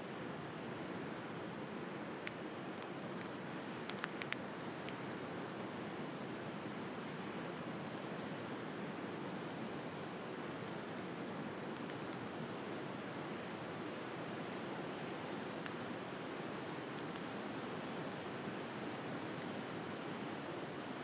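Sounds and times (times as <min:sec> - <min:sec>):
wood fire crackling and popping: 0:01.7 - 0:05.0, 0:09.5 - 0:12.6, 0:14.3 - 0:21.0.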